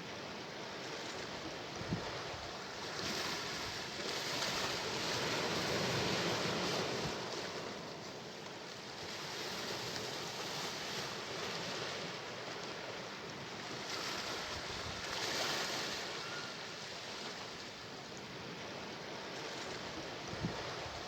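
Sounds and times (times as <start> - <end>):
sea waves washing in: 0.0 - 21.0.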